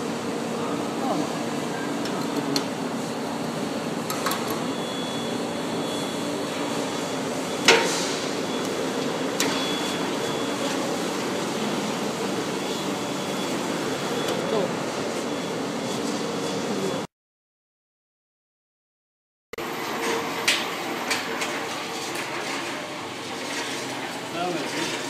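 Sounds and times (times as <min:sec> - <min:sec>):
machine humming: 0:00.0 - 0:17.1.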